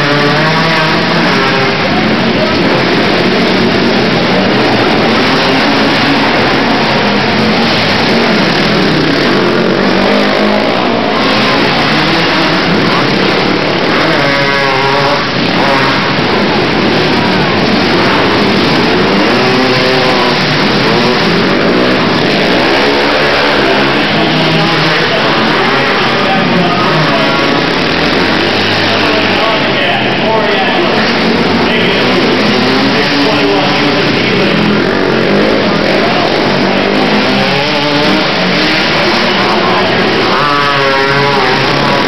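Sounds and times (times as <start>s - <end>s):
quad engines revving: 0.0s - 42.0s.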